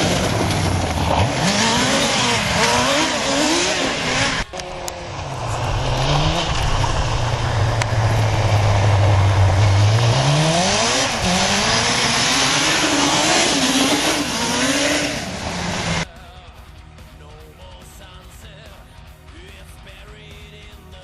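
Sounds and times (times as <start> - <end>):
motorcycle engine revving: 0.0 - 16.1.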